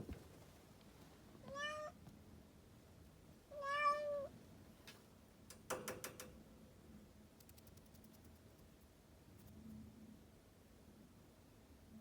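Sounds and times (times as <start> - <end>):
kitten meowing: 3.6 - 4.3.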